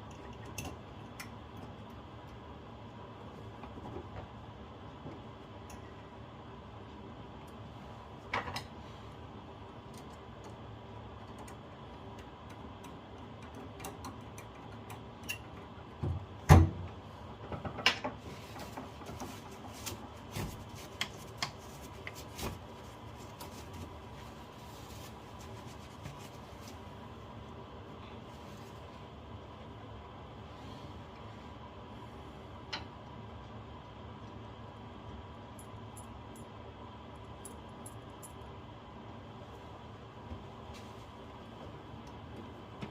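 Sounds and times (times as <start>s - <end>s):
faint steady hum: 0.0s - 42.9s.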